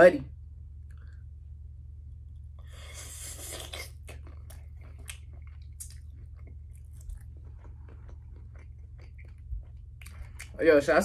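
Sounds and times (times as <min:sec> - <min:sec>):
steady low hum: 0:00.0 - 0:11.0
chewing with wet mouth clicks: 0:03.4 - 0:10.6.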